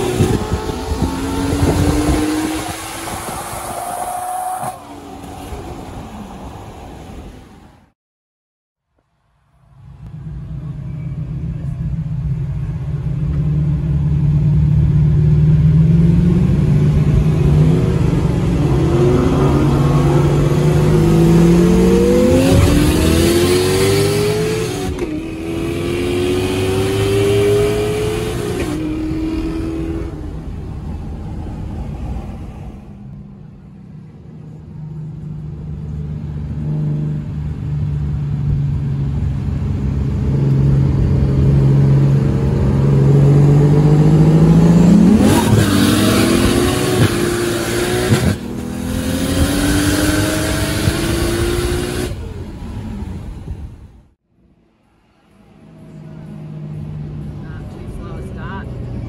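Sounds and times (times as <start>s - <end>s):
car engine accelerating: 0.0s - 6.6s, 9.7s - 54.2s
another car engine rising: 9.8s - 54.2s.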